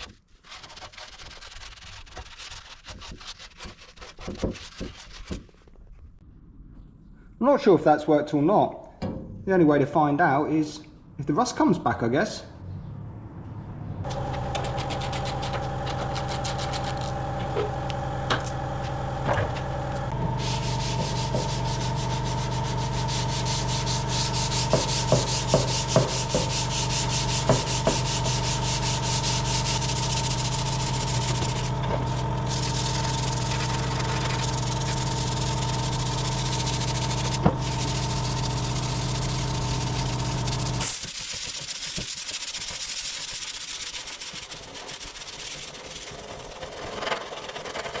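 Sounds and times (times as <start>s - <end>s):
power sander on metal: 14.1s - 46.8s.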